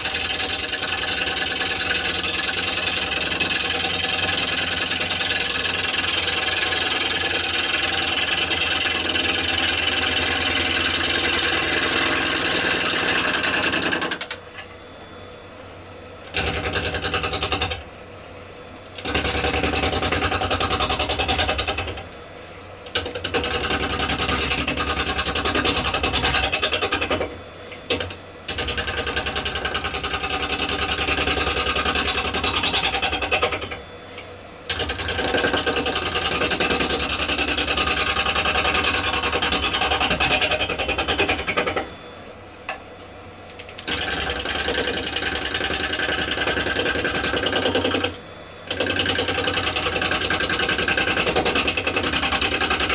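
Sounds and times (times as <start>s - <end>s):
gouge cutting wood on lathe: 0.0s - 14.2s, 34.7s - 41.5s, 43.9s - 48.1s, 48.7s - 52.9s
lathe humming: 0.1s - 14.3s.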